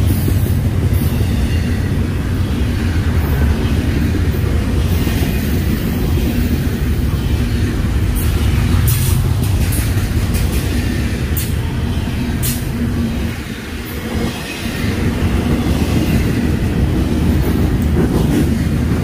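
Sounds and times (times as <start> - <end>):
freight train rumbling past: 0.0 - 19.0.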